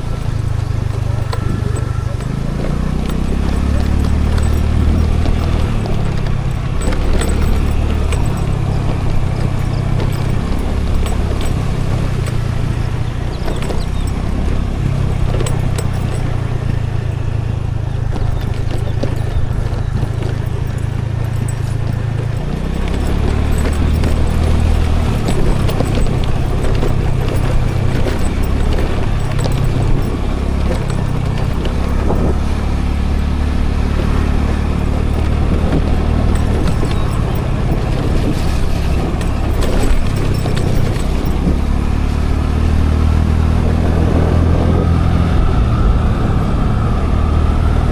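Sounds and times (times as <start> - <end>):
light clicks and rattles: 0.0 - 45.6
scooter engine rumble: 0.0 - 47.9
wind noise: 0.0 - 47.9.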